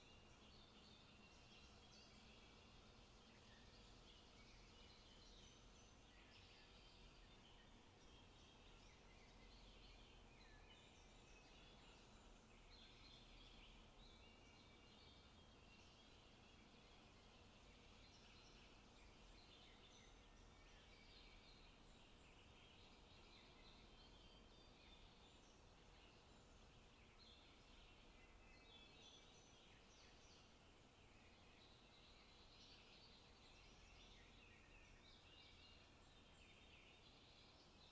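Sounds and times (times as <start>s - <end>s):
birdsong: 0.0s - 37.9s
low ambient hiss: 0.0s - 37.9s.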